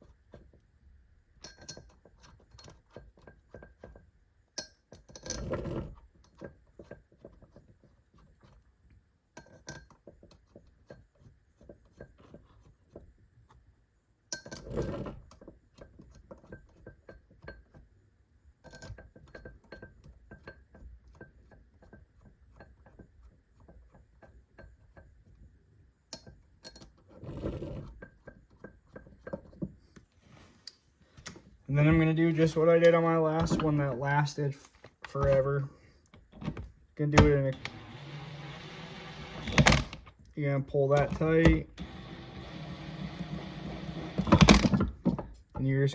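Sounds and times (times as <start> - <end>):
metal bolts clicking and clinking: 1.4 - 5.5.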